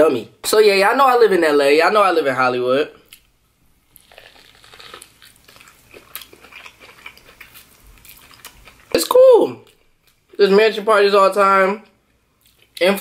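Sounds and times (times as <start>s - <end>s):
chewing crunchy food: 3.9s - 9.0s, 12.4s - 12.8s.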